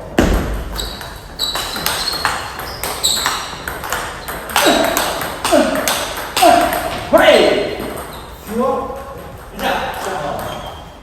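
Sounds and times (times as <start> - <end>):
table tennis ball clicking: 1.0 - 7.1.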